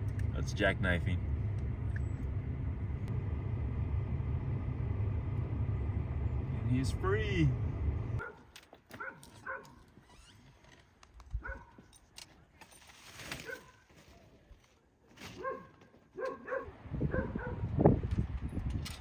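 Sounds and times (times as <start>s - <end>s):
low rumble: 0.0s - 8.2s
dog barking: 8.2s - 9.8s, 11.4s - 11.8s, 13.4s - 13.8s, 15.4s - 17.7s.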